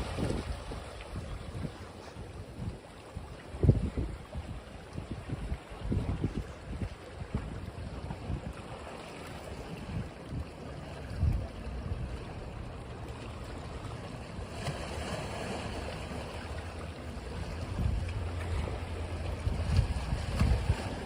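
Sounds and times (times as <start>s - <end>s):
ocean surf washing onto beach: 0.0s - 2.1s
wind buffeting microphone: 0.0s - 8.8s, 9.4s - 12.7s, 17.1s - 21.0s.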